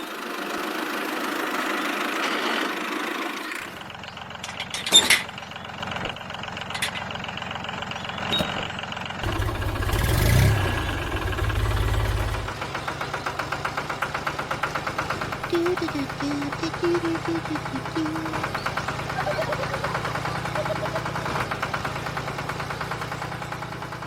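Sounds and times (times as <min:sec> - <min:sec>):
engine humming and chugging: 0:05.4 - 0:24.0.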